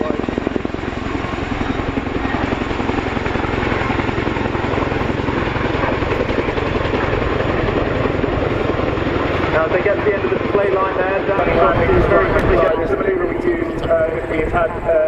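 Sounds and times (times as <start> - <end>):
helicopter rotor blades chopping: 0.0 - 15.0
helicopter turbine noise: 0.0 - 15.0.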